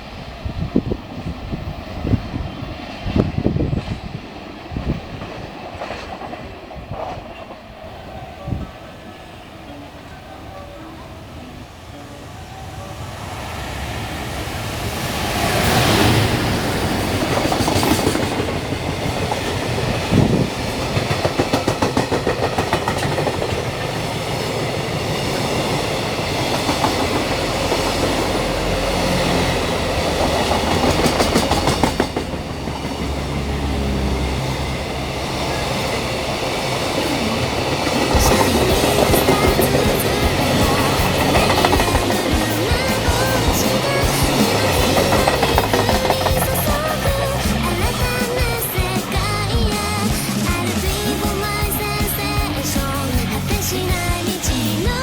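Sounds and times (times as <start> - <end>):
freight train passing: 0.0 - 55.0
wheels clacking over rail joints: 14.6 - 55.0.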